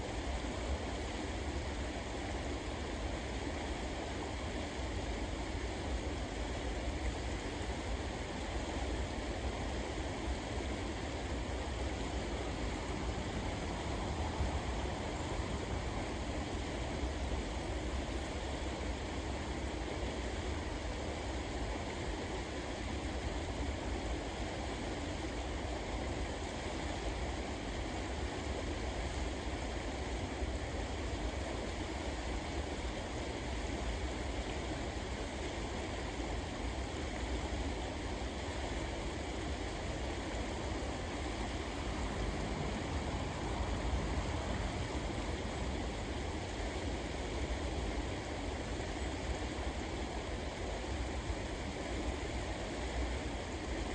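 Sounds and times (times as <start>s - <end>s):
river water rushing: 9.6s - 19.7s, 31.2s - 53.9s.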